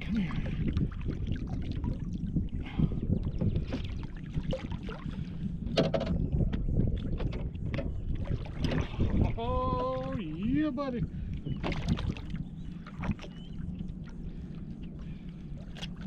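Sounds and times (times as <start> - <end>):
water slapping boat hull: 0.0 - 16.0
wind buffeting microphone: 0.0 - 16.0
splashes: 11.6 - 13.4.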